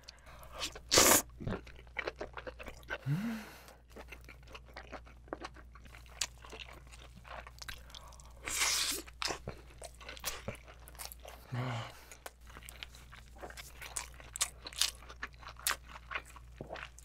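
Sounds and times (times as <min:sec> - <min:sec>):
wet chewing: 0:03.8 - 0:17.0.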